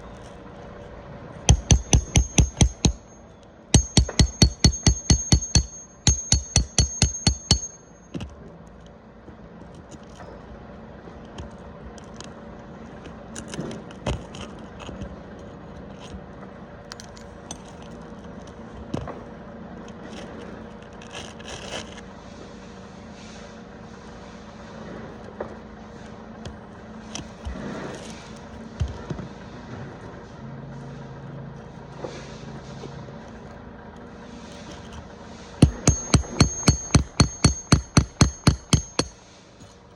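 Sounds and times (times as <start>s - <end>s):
rapid metal hammer strikes: 1.5s - 8.1s, 35.6s - 39.2s
hand tools scraping and clinking: 1.5s - 8.2s, 34.4s - 39.8s.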